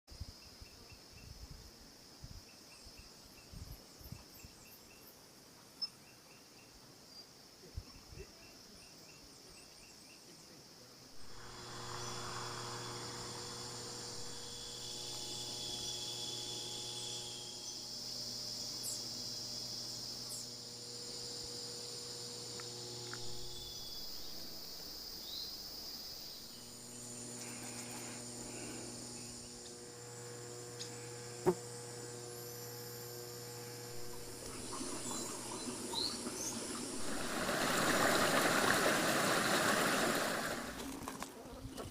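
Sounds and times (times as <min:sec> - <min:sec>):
crickets chirping: 0:00.1 - 0:41.6
high insect drone: 0:00.1 - 0:41.6
steady low hum: 0:11.1 - 0:41.8.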